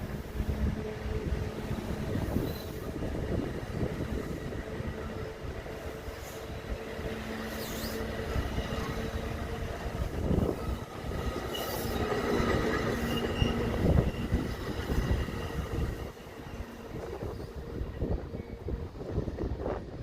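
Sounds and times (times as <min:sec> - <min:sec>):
train wheels rumbling on rails: 0:00.0 - 0:20.0
high-pitched wheel squeals: 0:07.4 - 0:09.0, 0:11.4 - 0:15.8.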